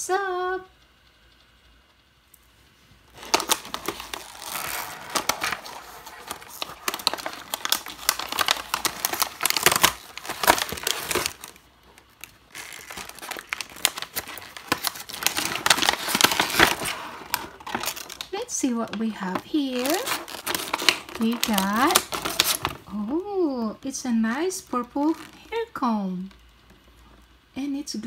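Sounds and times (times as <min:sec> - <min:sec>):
plastic packaging crinkling: 0:02.8 - 0:23.3, 0:24.4 - 0:25.8.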